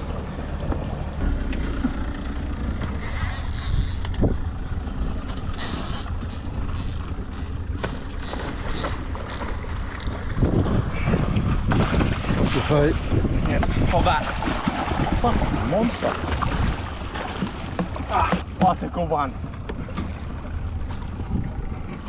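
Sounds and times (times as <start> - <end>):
low rumble aboard sailboat: 0.0 - 22.0
wind noise: 8.2 - 17.1.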